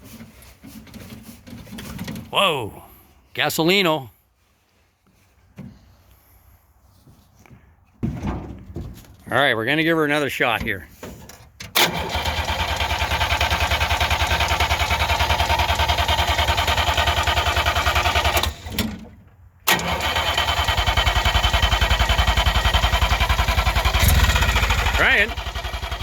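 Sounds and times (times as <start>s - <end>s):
starter cranking engine: 11.8s - 19.0s, 19.7s - 26.0s.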